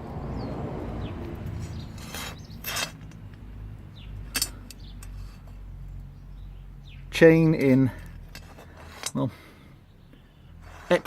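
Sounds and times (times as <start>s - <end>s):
chainsaw handling scrapes: 1.7s - 3.1s, 8.2s - 9.2s.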